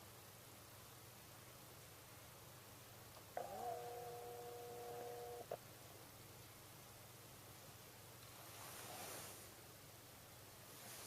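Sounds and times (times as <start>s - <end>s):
faint steady hiss: 0.0s - 11.0s
soft rustle: 8.2s - 9.8s, 10.4s - 11.0s.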